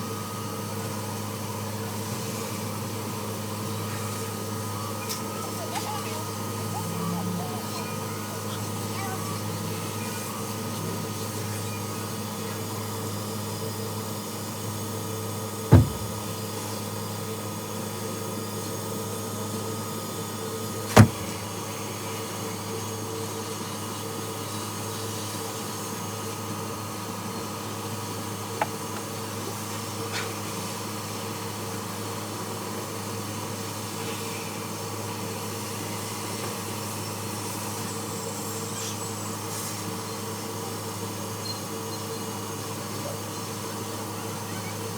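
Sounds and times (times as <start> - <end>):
loud knocks: 15.7 - 16.2, 20.9 - 21.4.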